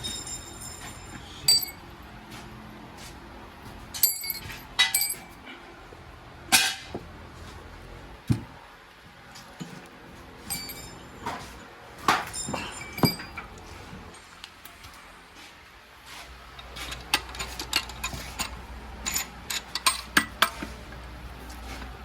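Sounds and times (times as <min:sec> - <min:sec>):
metal tools clinking and knocking: 0:00.0 - 0:01.8, 0:03.9 - 0:05.4, 0:10.4 - 0:11.5, 0:12.1 - 0:14.3, 0:16.5 - 0:20.7.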